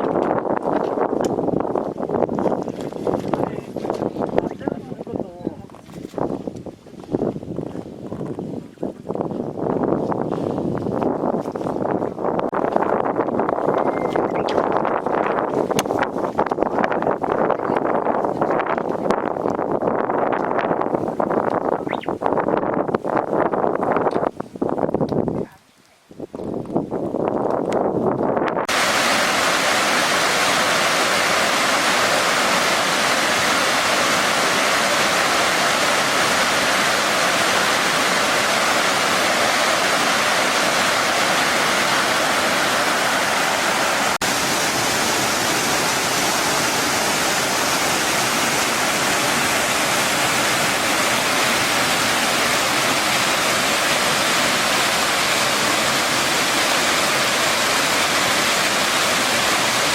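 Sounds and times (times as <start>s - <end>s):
stream water rushing: 28.7s - 59.9s.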